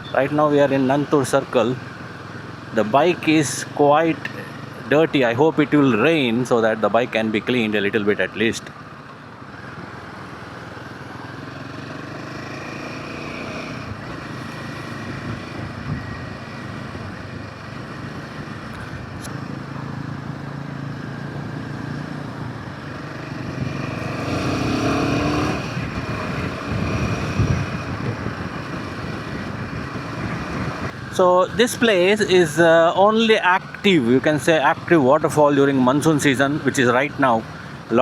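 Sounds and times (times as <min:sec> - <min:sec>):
road noise: 0:00.0 - 0:38.0
motorcycle engine running: 0:09.4 - 0:31.2
wind noise: 0:15.0 - 0:17.6, 0:23.4 - 0:31.8.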